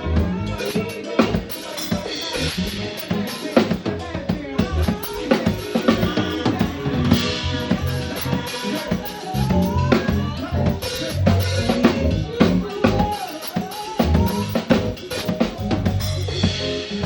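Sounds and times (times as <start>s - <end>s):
bass line: 0.0s - 0.7s, 2.3s - 3.2s, 3.8s - 8.5s, 9.3s - 13.2s, 14.0s - 17.0s
drum kit beat: 0.0s - 17.0s
held chords: 0.0s - 17.0s.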